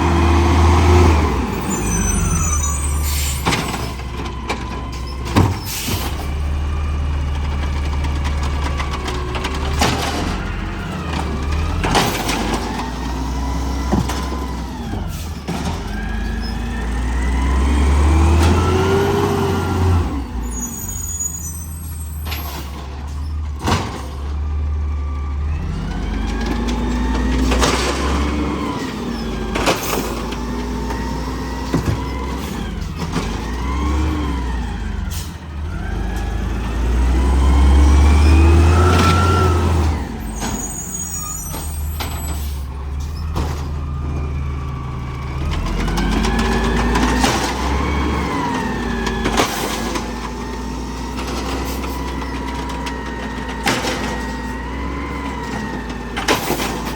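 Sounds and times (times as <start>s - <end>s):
garbage truck engine revving: 0.0s - 56.9s
air brakes hissing: 1.6s - 4.0s, 5.5s - 6.3s.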